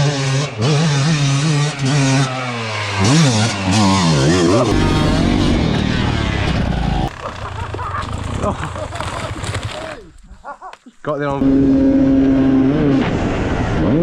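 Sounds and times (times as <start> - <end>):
dirt bike engine revving: 0.0 - 10.0, 11.4 - 14.0.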